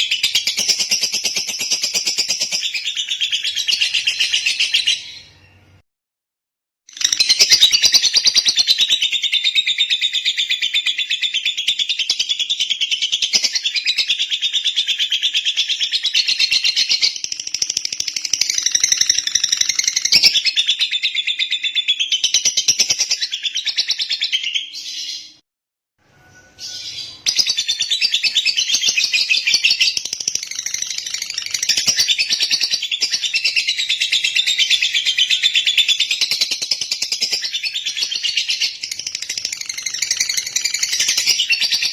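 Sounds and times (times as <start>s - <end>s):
bird chirping chatter: 26.4s - 41.9s.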